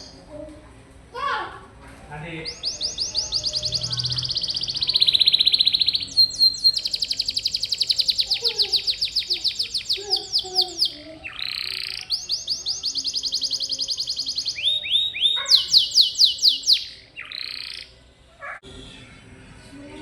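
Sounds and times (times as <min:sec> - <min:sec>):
canary trilling: 0:00.0 - 0:00.2, 0:02.3 - 0:19.4
harsh rasping bird call: 0:02.5 - 0:19.2.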